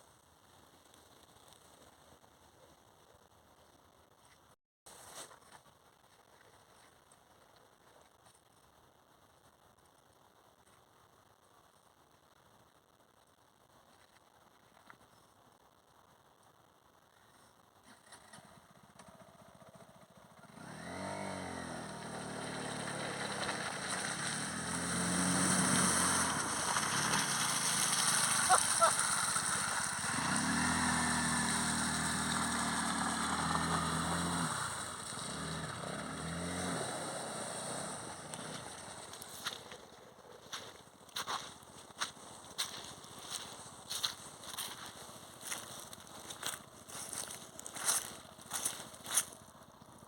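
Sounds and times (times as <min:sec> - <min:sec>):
motorcycle engine revving: 0:18.0 - 0:40.0
rushing water hiss: 0:25.1 - 0:30.0.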